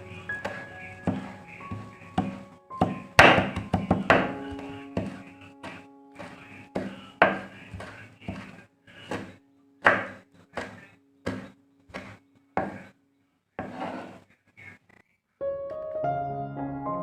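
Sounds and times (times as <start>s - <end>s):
knife chopping on wood: 2.2s - 4.3s, 5.0s - 12.8s.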